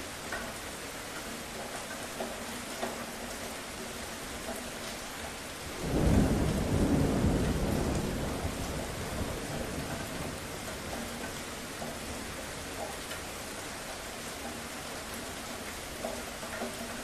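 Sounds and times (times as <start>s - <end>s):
rain hiss: 0.0s - 17.0s
thunder rumbling: 5.7s - 11.2s.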